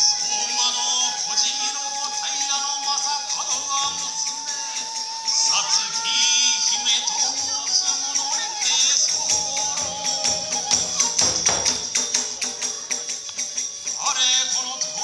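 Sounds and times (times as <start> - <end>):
bamboo flute melody: 0.0 - 15.0
small hand cymbals clashing: 0.0 - 15.0
drum strokes: 4.1 - 15.0.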